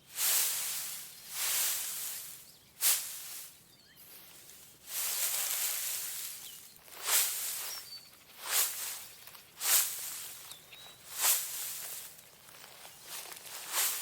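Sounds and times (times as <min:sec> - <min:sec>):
hissing rustling noise: 0:00.0 - 0:14.0
faint high chirps: 0:02.2 - 0:04.4, 0:05.2 - 0:14.0.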